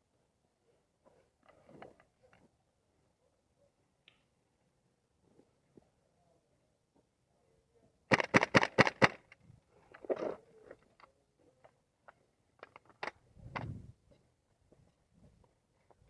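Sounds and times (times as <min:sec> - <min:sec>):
airsoft gun shots: 0:08.1 - 0:09.2
faint clicks and knocks: 0:09.3 - 0:13.8.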